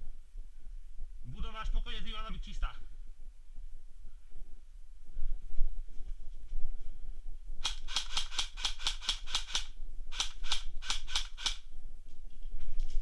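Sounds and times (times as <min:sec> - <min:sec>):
airsoft gun firing shots: 0:07.6 - 0:11.6.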